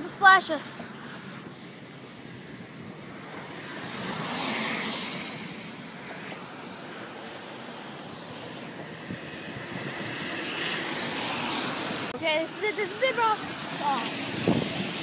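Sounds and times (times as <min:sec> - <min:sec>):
tyres hissing through water: 0:03.1 - 0:15.0.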